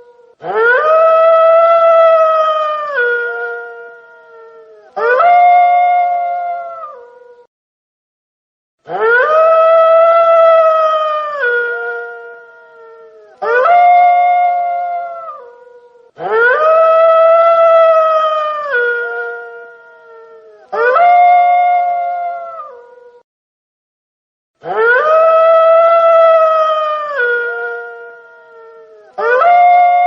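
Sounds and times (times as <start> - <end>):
wolf howling: 0.0 - 7.5, 8.9 - 23.2, 24.6 - 30.0.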